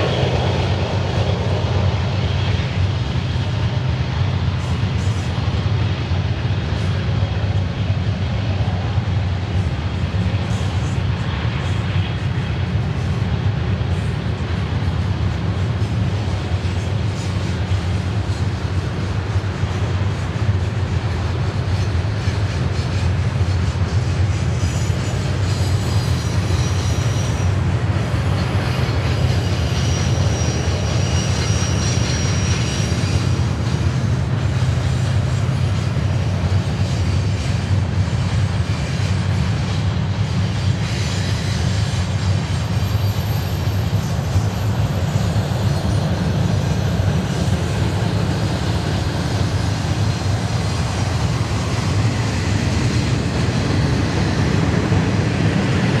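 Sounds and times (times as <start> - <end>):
train rumbling on rails: 0.0 - 56.0
faint wheel squeal: 22.3 - 36.0, 40.3 - 55.8.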